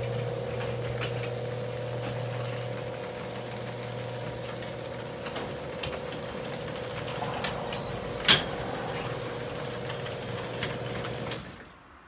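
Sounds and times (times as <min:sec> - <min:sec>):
garage door opener motor running: 0:00.0 - 0:11.6.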